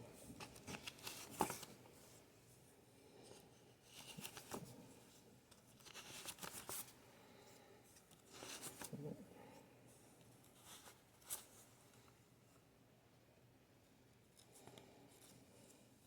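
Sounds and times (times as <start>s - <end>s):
paper bills rustling: 0.3s - 1.8s, 5.6s - 6.9s.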